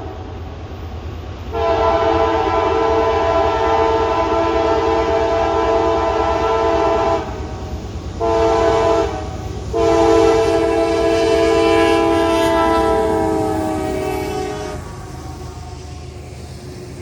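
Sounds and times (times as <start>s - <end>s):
low diesel rumble of train: 0.0s - 17.0s
locomotive air horn blasts: 1.5s - 7.3s, 8.2s - 15.4s.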